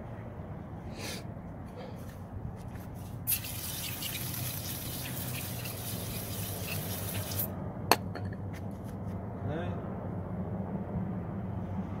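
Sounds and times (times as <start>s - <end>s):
spraying hiss: 3.3s - 7.5s.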